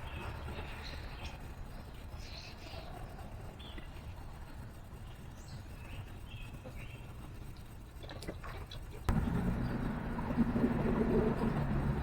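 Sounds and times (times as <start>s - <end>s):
songbirds chirping: 0.0s - 7.7s, 9.1s - 12.0s
low background rumble: 8.5s - 12.0s.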